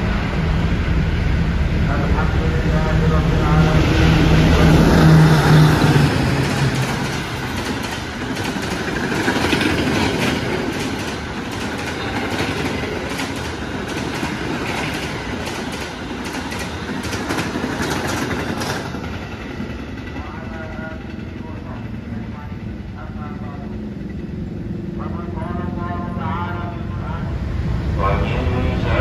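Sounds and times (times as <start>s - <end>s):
diesel locomotive drone: 0.0s - 29.0s
train wheels rushing on rail: 0.0s - 29.0s
wheels clacking over rail joints: 4.6s - 20.2s.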